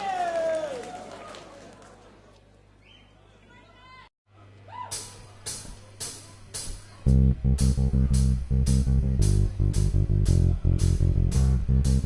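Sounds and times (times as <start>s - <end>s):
rock band playing: 7.1s - 12.0s.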